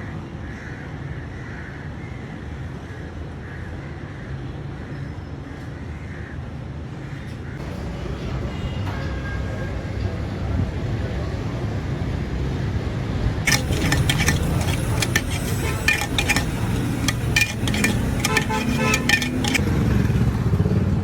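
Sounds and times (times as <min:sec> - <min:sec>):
metallic clinks and clatters: 0:13.5 - 0:19.6.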